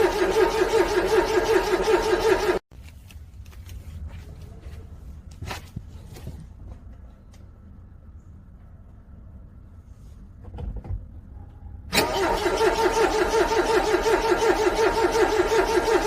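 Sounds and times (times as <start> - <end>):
starter motor cranking engine: 0.0 - 2.6, 11.9 - 16.0.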